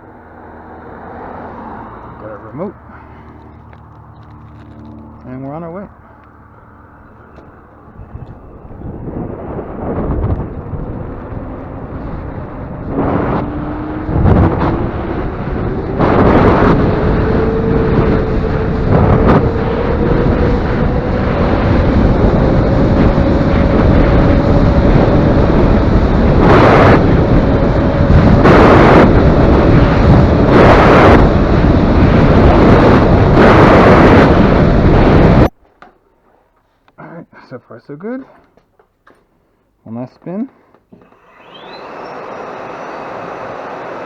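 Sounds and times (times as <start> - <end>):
wind rushing over microphone: 0.0 - 35.6
electric motor whine: 7.2 - 34.1, 41.0 - 44.0.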